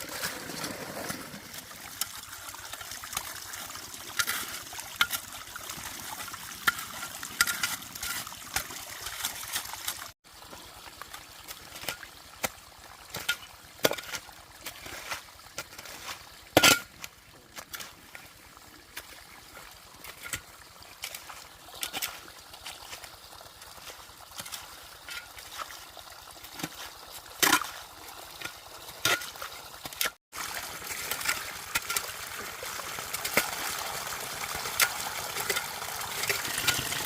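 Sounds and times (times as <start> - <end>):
water trickling: 0.0 - 37.0.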